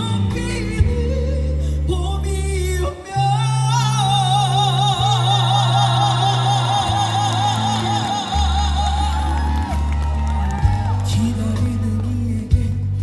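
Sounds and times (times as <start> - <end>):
live band playing: 6.9 - 13.0.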